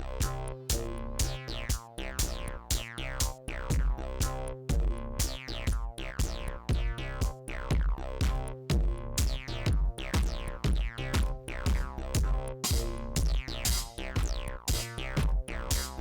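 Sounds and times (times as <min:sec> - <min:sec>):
electronic dance music: 0:09.2 - 0:16.0.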